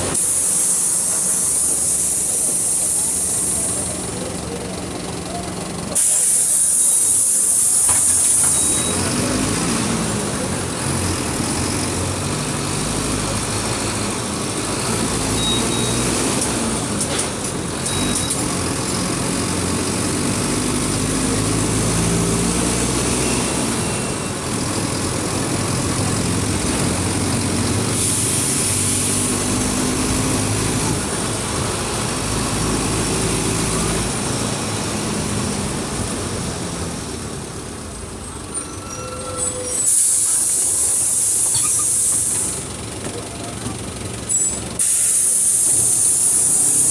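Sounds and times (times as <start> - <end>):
bus diesel engine running: 0.0 - 46.9
air hiss: 0.1 - 3.9, 44.8 - 46.9.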